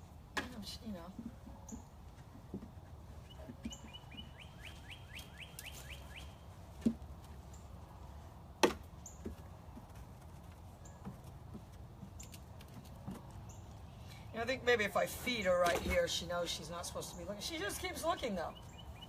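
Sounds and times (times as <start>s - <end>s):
bird trill: 3.2s - 6.4s.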